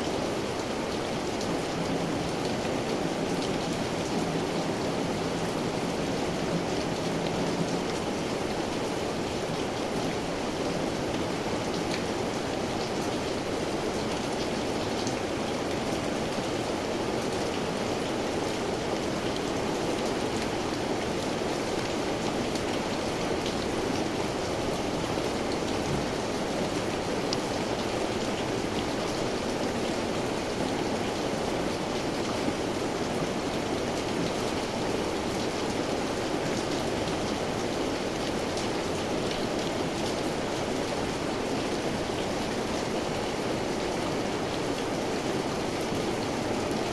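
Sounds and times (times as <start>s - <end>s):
steady rain hissing: 0.0s - 46.9s
raindrops ticking on surfaces: 0.1s - 46.9s.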